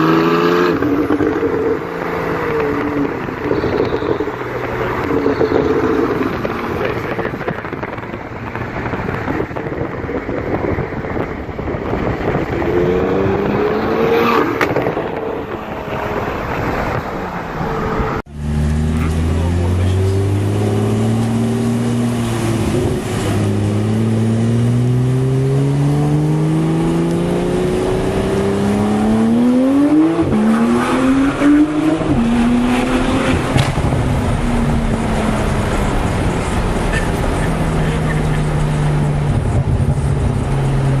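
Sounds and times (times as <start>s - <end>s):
sports car engine accelerating: 0.0s - 41.0s
exhaust cracks: 0.7s - 12.7s, 30.1s - 41.0s.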